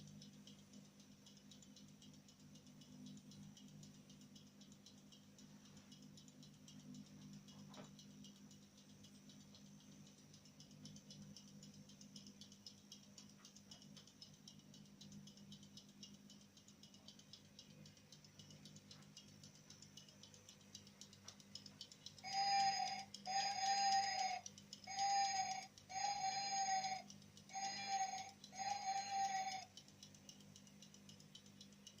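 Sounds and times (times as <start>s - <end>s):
faint fast ticking: 0.0s - 32.0s.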